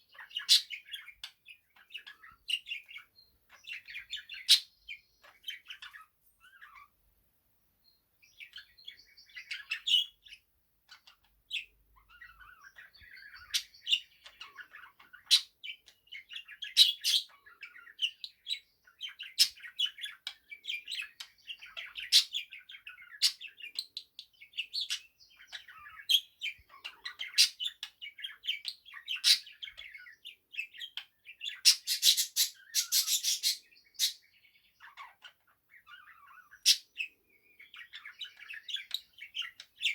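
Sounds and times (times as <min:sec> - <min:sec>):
budgerigar sharp chirps: 0:00.1 - 0:04.7, 0:19.0 - 0:37.1
budgerigar warbling chatter: 0:29.0 - 0:29.9, 0:31.5 - 0:34.2.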